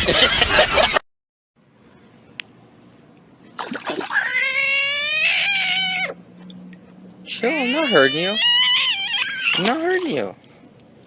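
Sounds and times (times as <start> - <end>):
cat yowling: 4.1 - 6.2, 7.3 - 9.7.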